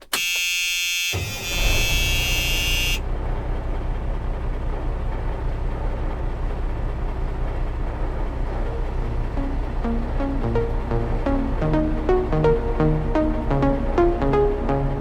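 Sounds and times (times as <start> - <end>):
loud buzzing horn tone: 0.1 - 3.0
low engine rumble: 1.6 - 15.0.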